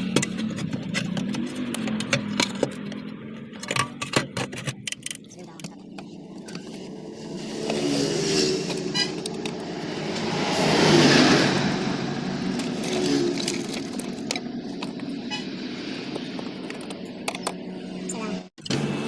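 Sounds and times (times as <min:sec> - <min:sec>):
vehicle passing by: 0:06.2 - 0:16.6.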